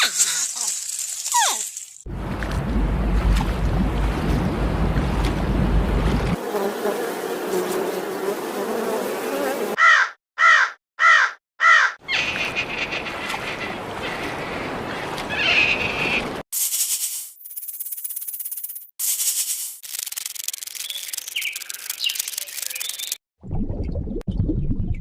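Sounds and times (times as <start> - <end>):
animal buzzing: 6.4 - 9.8
higher animal buzz: 6.4 - 9.8.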